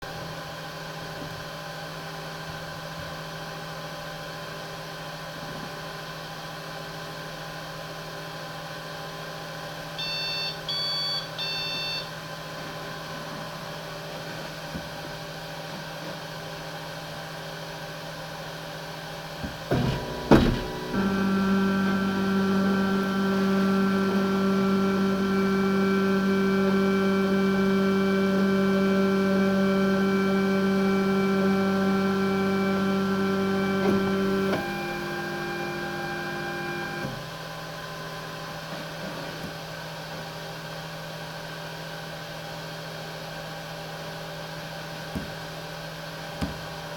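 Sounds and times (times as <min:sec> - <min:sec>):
motors and fans whining: 0:00.0 - 0:46.9
printer beeping tune: 0:10.0 - 0:12.1
three d printer humming: 0:19.4 - 0:37.4
printer clunks: 0:19.5 - 0:22.1, 0:33.8 - 0:37.2.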